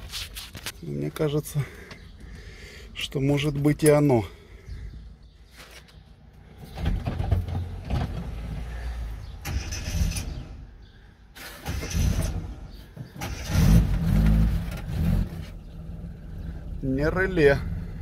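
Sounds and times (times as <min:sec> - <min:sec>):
car engine starting and revving: 0:06.6 - 0:10.7, 0:11.4 - 0:18.0.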